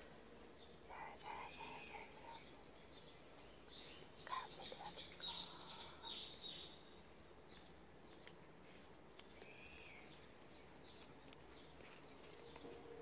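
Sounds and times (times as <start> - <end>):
faint bird chirps: 0.6 - 7.0, 8.1 - 11.0.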